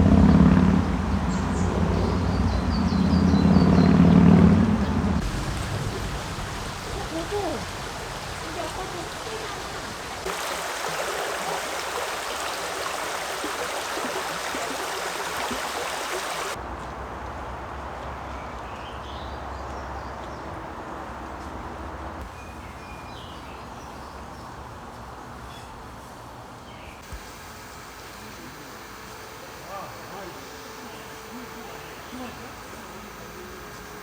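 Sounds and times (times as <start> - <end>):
running water rushing: 0.0 - 16.6, 27.0 - 34.0.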